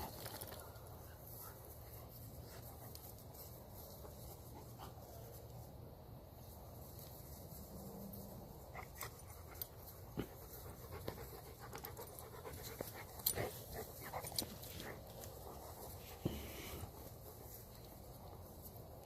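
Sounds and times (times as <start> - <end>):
puppies panting: 8.6 - 19.0.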